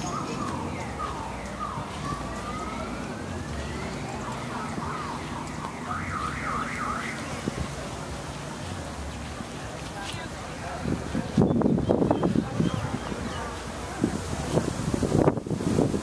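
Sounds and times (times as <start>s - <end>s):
electronic siren sweeping: 0.0s - 7.4s.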